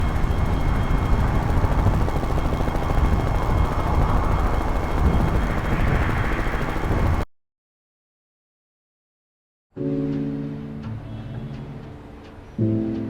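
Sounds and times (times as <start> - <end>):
engine and wind noise: 0.0 - 7.2
helicopter rotor beating: 0.0 - 7.3.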